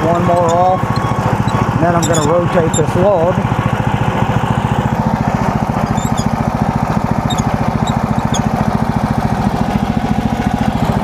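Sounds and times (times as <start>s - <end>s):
gasoline engine running: 0.0s - 11.0s
faint high chirps: 5.8s - 6.3s, 7.3s - 8.5s.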